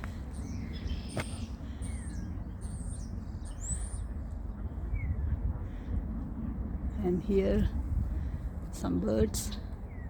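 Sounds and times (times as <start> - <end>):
steady low rumble: 0.0 - 10.0
small birds chirping and whistling: 0.3 - 4.3.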